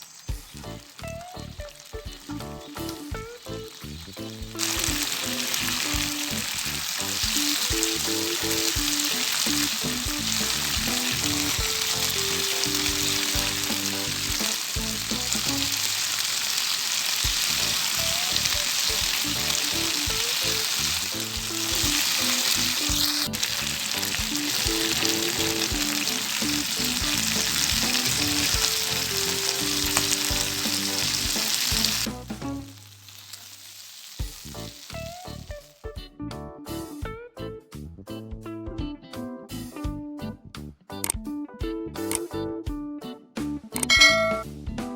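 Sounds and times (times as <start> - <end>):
meat sizzling on grill pan: 0.0 - 35.8.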